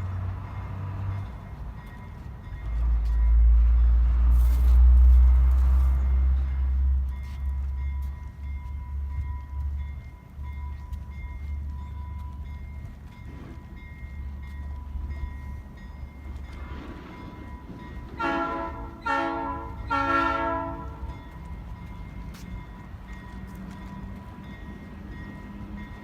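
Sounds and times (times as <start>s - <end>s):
locomotive horn blasts: 18.2s - 21.2s.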